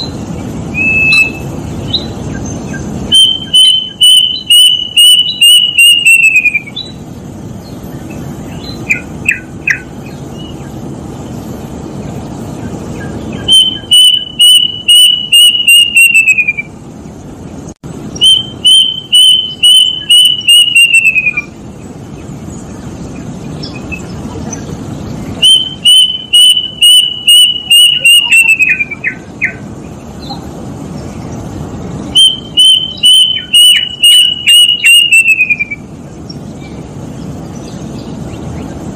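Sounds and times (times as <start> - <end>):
cuckoo whistling: 0.0 - 2.1, 2.7 - 7.0, 13.4 - 16.8, 18.2 - 21.6, 25.4 - 29.6, 32.1 - 35.9
steady low hiss: 0.0 - 38.9.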